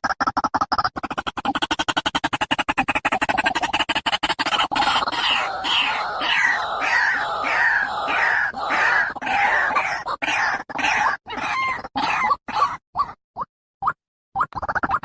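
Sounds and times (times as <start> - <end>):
bird harsh croaking calls: 1.9 - 12.8.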